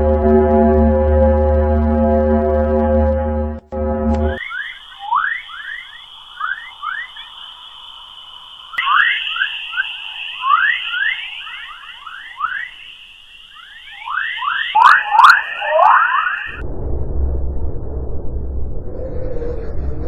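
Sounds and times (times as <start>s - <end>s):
high whistling tone: 3.8s - 16.6s.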